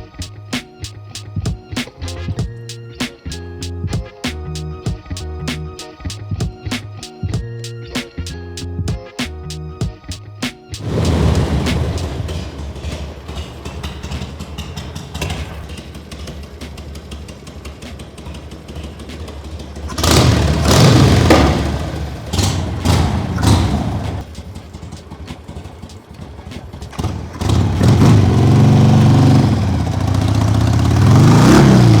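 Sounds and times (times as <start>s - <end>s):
motorcycle engine idling and revving: 10.8s - 32.0s.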